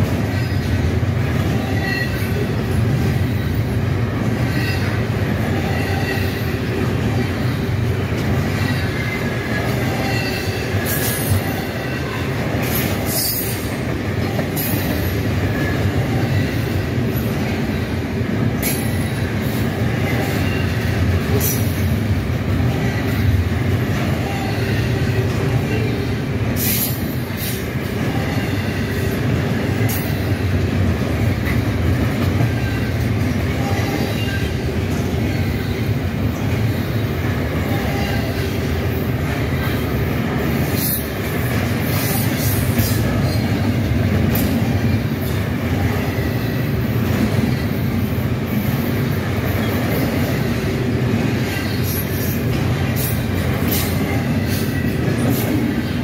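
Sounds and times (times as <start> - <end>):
steel wheels rumbling on rail: 0.0 - 56.0
high-pitched wheel squeals: 1.5 - 2.4.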